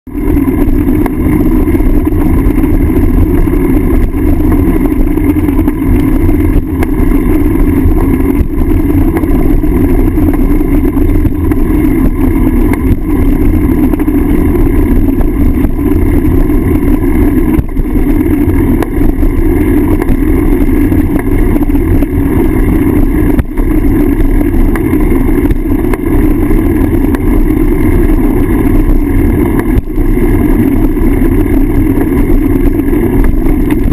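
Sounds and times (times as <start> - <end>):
bicycle road vibration: 0.0 - 33.9
wind rumble: 0.1 - 33.9.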